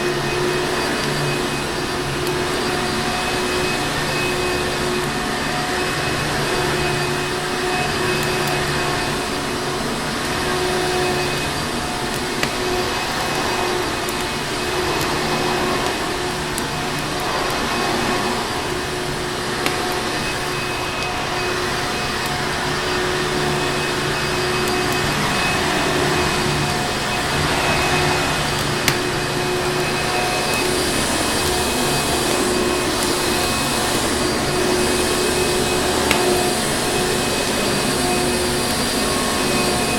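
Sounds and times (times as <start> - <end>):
vacuum cleaner motor running: 0.0 - 39.9.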